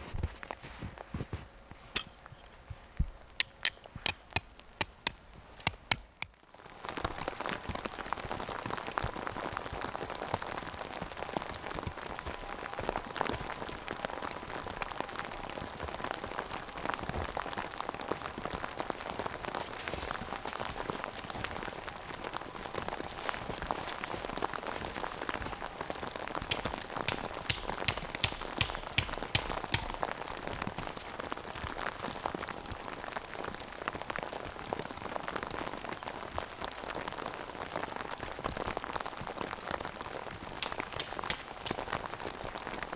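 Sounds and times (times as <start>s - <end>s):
rain falling on a surface: 6.3s - 28.0s, 29.7s - 40.6s, 41.6s - 42.9s.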